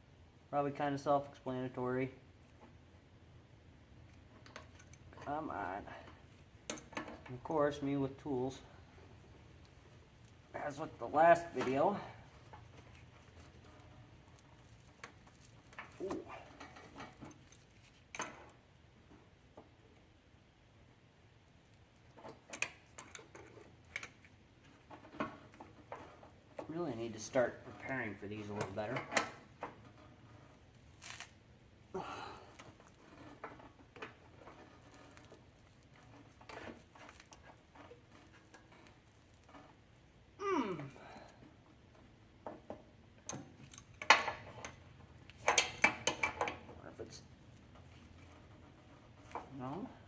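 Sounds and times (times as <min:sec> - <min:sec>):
tools clattering: 0:43.5 - 0:46.7.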